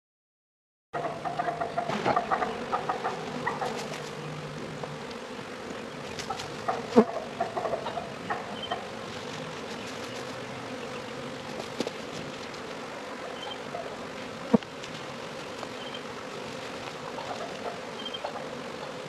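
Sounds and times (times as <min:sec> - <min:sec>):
honeybee swarm buzzing: 0:01.0 - 0:19.0.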